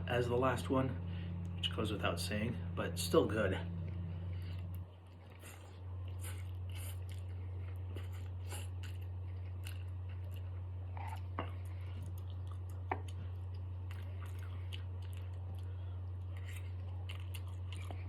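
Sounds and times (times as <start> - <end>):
steady low hum: 0.0 - 18.0
person chewing noodles: 3.8 - 18.0.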